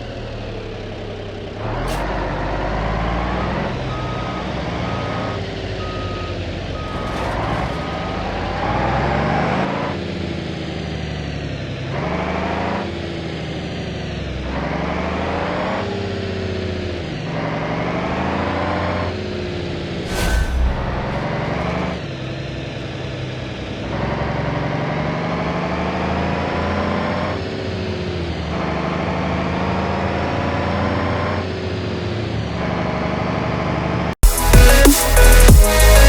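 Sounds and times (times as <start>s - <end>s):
regular beeping tone: 3.8s - 8.4s, 20.1s - 21.5s.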